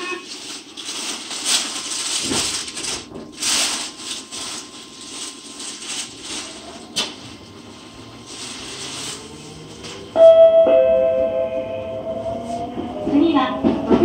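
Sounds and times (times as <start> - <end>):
subway car rumbling and rattling: 0.0 - 14.0.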